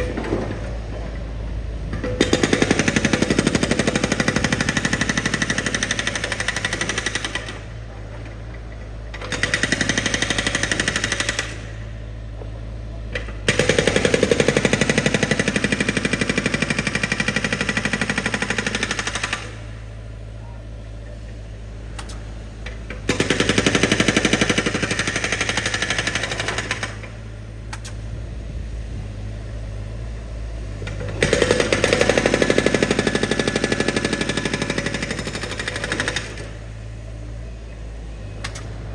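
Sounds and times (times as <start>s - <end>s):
low engine hum: 0.0s - 3.8s, 27.1s - 31.2s, 36.5s - 38.9s
percussive drilling hammer: 2.0s - 7.6s, 13.5s - 19.6s, 23.1s - 27.1s, 30.9s - 36.6s.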